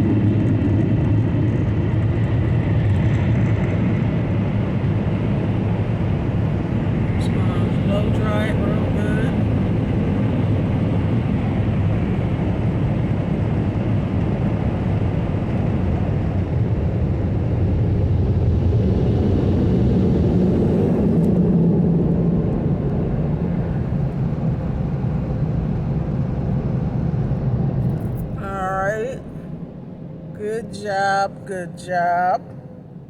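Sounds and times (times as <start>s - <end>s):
car wash blower dryers: 3.8s - 15.6s.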